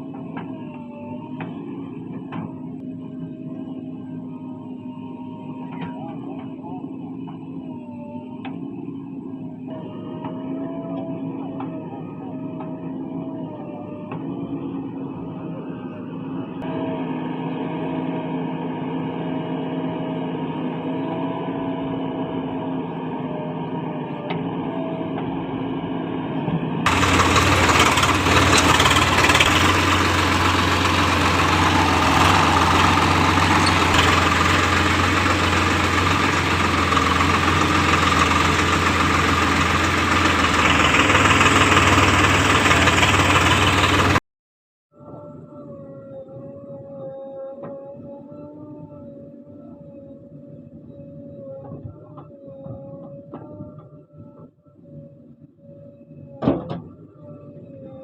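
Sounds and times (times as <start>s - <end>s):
heavy diesel machinery engines: 0.0s - 44.2s.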